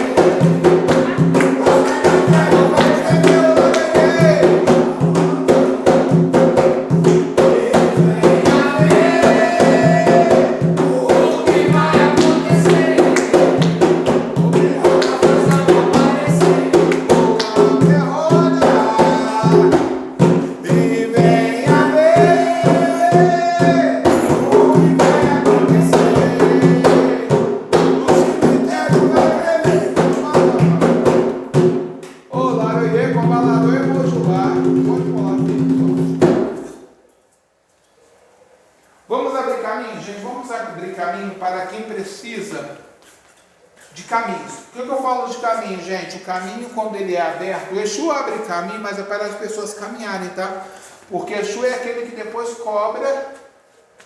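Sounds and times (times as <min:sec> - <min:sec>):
tambourine-like percussion: 0:00.0 - 0:31.9
devotional chant singing: 0:00.0 - 0:36.8
drums beating: 0:00.0 - 0:36.8.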